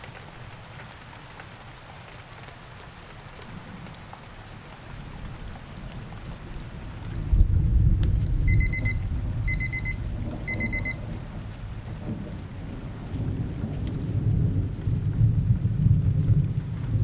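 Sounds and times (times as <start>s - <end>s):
steady rain: 0.0s - 17.0s
thunder: 4.9s - 17.0s
timer alarm beeping: 8.5s - 11.2s.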